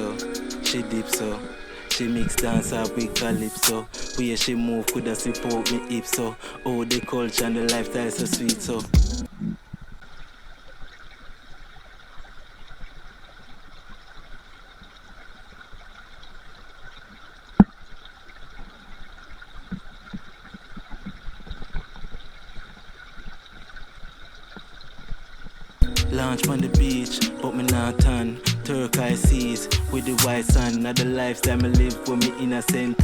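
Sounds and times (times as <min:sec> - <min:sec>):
river water running over rocks: 0:10.0 - 0:33.0.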